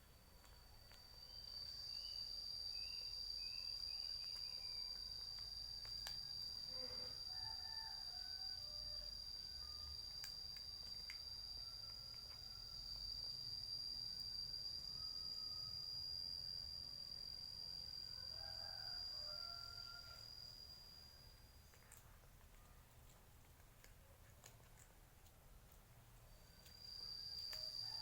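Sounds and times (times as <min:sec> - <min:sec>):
insect drone: 0:00.0 - 0:22.1, 0:26.0 - 0:28.0.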